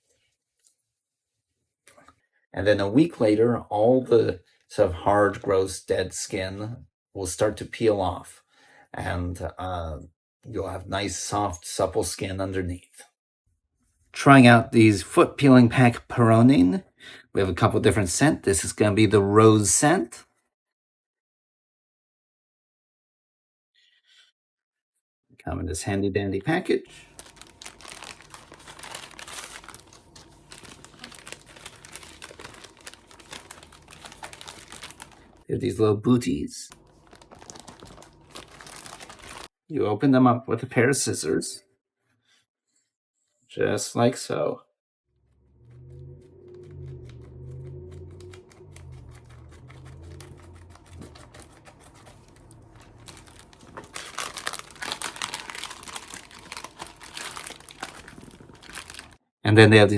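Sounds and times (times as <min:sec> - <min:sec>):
packaging crinkling: 0:26.9 - 0:35.4, 0:36.7 - 0:39.5, 0:46.6 - 0:59.2.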